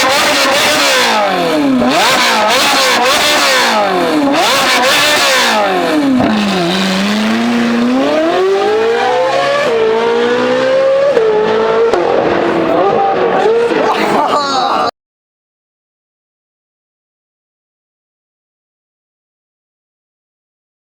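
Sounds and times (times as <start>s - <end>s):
car engine revving: 0.0s - 14.3s.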